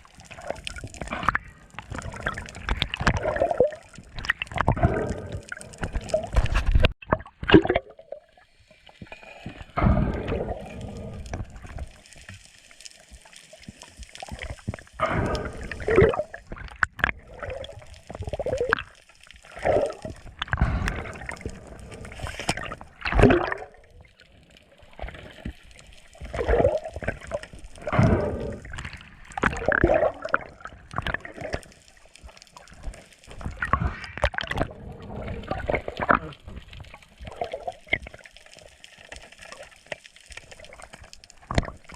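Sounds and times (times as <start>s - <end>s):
seawater sloshing and gurgling: 0.0s - 8.2s, 14.2s - 24.1s, 26.2s - 31.8s, 32.6s - 38.3s.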